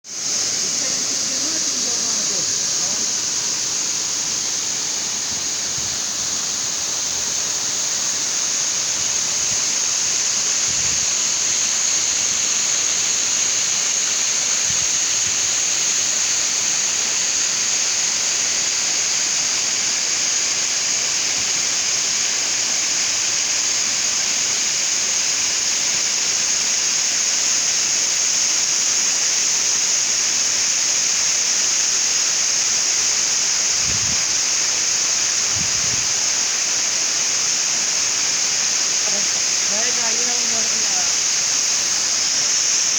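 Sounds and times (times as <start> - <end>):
waterfall rushing: 33.7 - 42.9.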